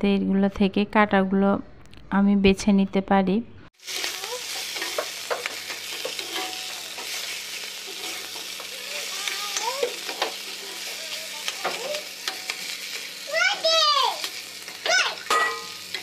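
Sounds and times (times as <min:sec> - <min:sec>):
hot oil sizzling: 0:03.8 - 0:16.0
spatula scraping and knocking pan: 0:03.9 - 0:13.1.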